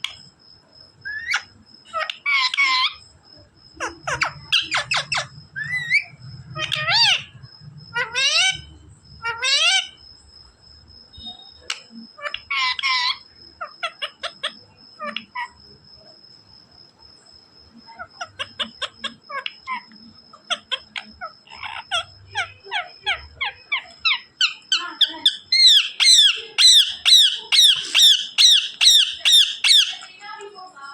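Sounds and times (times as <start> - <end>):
parrot squawking: 1.1 - 3.0, 3.8 - 10.0, 12.2 - 15.6, 18.0 - 30.2
parrot chirps and whistles: 20.5 - 30.1.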